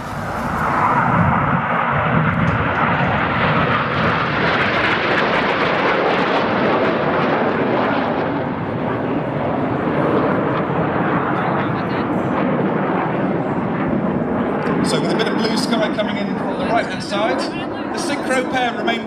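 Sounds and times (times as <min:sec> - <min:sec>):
jet aircraft flying low past: 0:00.0 - 0:19.0.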